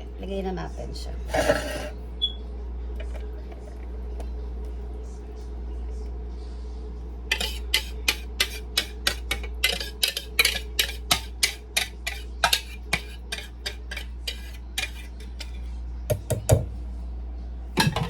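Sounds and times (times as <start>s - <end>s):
steady low hum: 0.0s - 18.0s
utensil scraping a mixing bowl: 1.3s - 2.0s, 7.3s - 15.7s.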